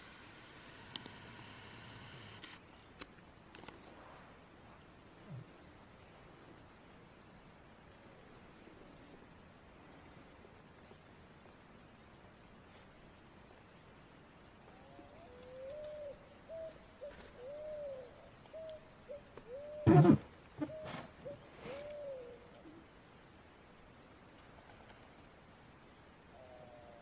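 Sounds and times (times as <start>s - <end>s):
insect chirring: 12.9s - 27.0s
bird hooting calls: 15.1s - 22.8s.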